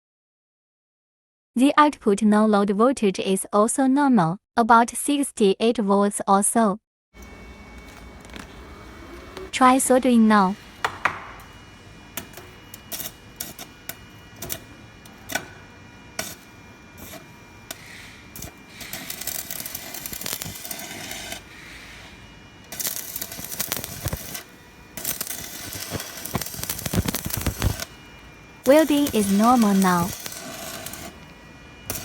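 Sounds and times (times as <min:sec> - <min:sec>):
welding arc crackling: 0:07.2 - 0:32.0.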